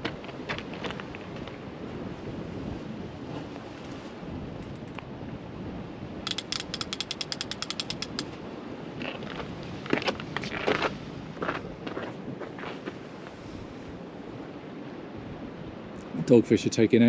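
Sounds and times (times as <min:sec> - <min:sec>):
wind noise: 0:00.0 - 0:17.0
fishing reel clicking: 0:06.3 - 0:08.3.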